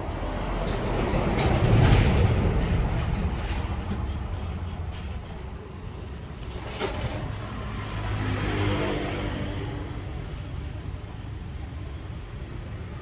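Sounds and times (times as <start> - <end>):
motor vehicle passing by: 6.3 - 11.3.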